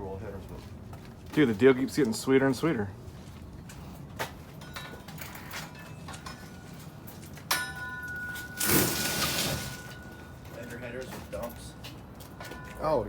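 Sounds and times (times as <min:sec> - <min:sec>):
ringing metallic clink: 0:07.5 - 0:10.5.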